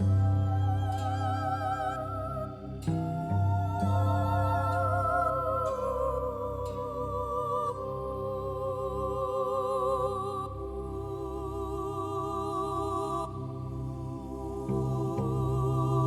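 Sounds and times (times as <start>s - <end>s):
wavering synth tones: 0.0s - 9.0s.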